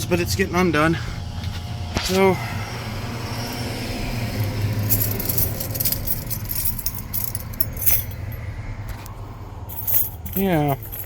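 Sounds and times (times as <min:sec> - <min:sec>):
keys jangling: 0:04.3 - 0:09.1, 0:09.7 - 0:11.0.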